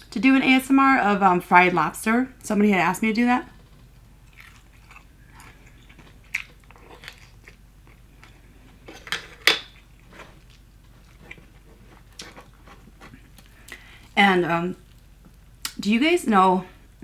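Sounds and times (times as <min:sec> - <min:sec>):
crunching fried chicken: 0:04.2 - 0:14.2.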